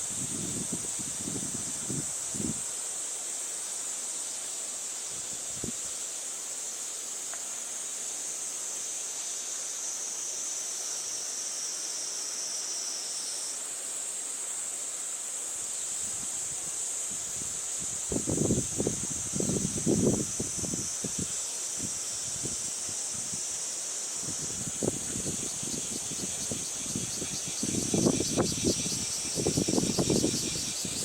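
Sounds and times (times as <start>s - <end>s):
high-pitched insect chorus: 0.0s - 31.0s
wind through foliage: 0.0s - 31.0s
wind buffeting microphone: 24.3s - 31.0s.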